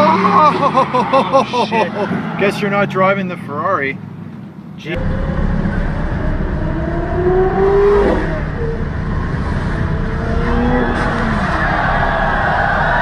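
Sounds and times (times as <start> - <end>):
sports car engine revving: 5.0 - 13.0.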